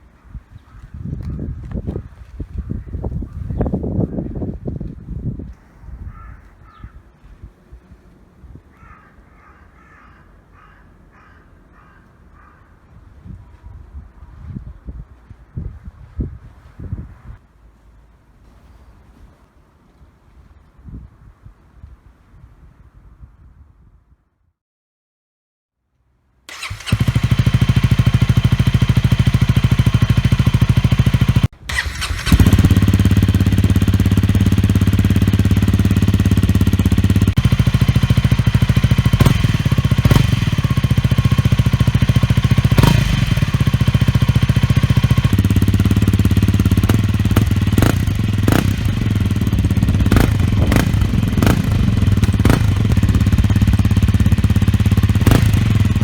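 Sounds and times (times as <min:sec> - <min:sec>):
motorcycle engine idling: 0:26.5 - 0:56.0
sharp exhaust cracks: 0:26.5 - 0:56.0.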